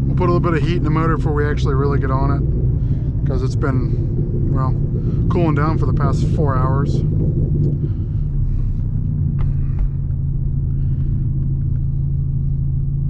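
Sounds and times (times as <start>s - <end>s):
car engine running while driving: 0.0s - 13.0s.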